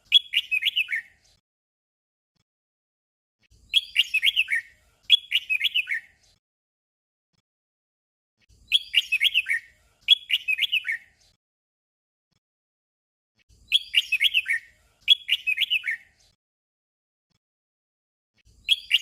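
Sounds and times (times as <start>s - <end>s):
bulbul warbling song: 0.0s - 1.1s, 3.7s - 6.0s, 8.7s - 11.0s, 13.7s - 16.0s.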